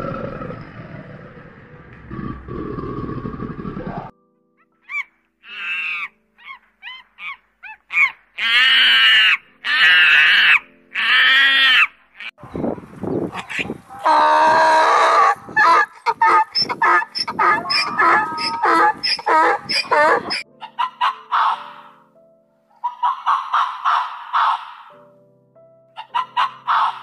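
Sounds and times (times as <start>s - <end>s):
loud pitched animal calls: 13.5s - 21.9s.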